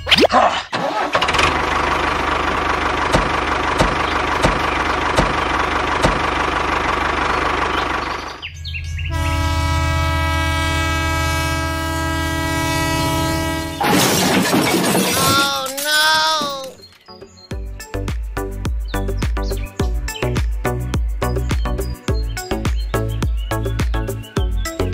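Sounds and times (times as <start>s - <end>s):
tractor engine knocking: 0.8s - 8.5s
train horn blast: 9.1s - 13.9s.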